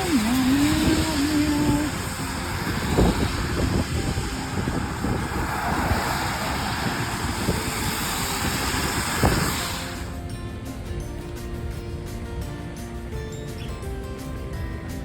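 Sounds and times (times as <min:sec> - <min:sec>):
car road and wind noise: 0:00.0 - 0:15.0.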